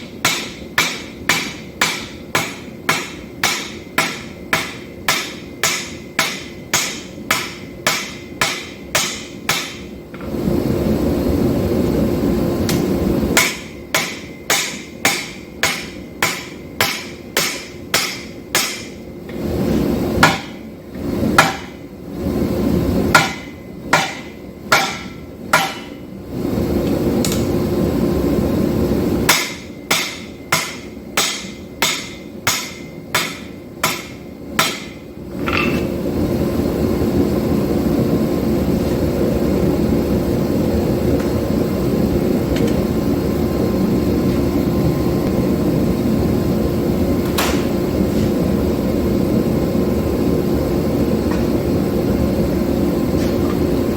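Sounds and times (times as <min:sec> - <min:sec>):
hammer ringing on steel: 0:00.2 - 0:09.8, 0:13.4 - 0:19.0, 0:23.2 - 0:26.0, 0:29.3 - 0:35.9.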